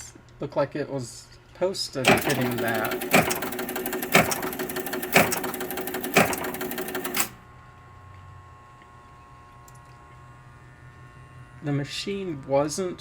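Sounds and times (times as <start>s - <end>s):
pinball relays chattering: 2.0s - 7.4s
loud mechanical clunk: 2.1s - 7.4s.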